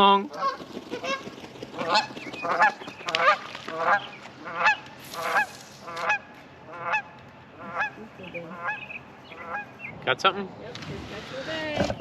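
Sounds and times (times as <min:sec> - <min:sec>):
geese honking: 0:00.3 - 0:09.9.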